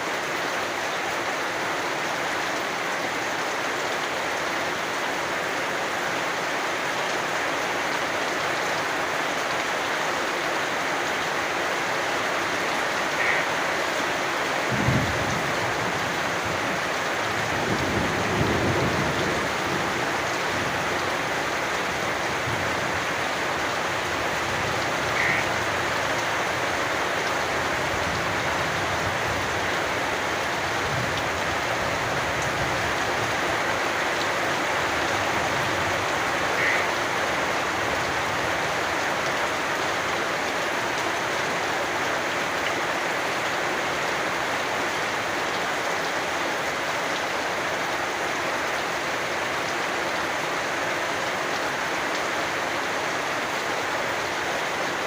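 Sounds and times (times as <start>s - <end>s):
steady rain falling: 0.0s - 55.0s
frog calling: 13.1s - 13.6s, 24.9s - 25.7s, 36.4s - 37.3s.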